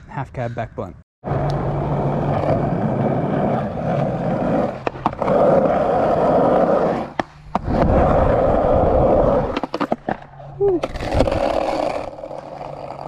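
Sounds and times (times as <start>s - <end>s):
skateboard wheels rolling: 1.2s - 13.0s
skateboard clicks and knocks: 1.4s - 13.0s.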